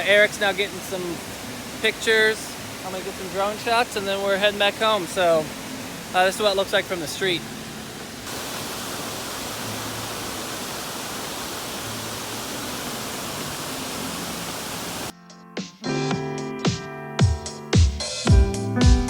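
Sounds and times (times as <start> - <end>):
waterfall rushing over rocks: 0.0 - 15.1.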